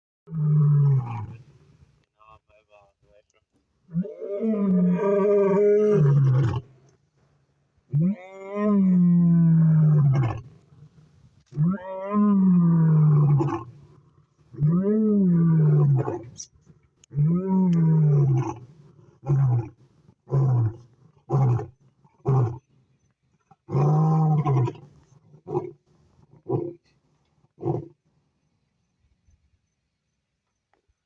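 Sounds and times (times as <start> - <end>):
large animal roaring: 3.9 - 6.7, 7.9 - 10.5, 11.5 - 13.8, 14.6 - 16.3, 17.1 - 18.6, 23.7 - 24.8.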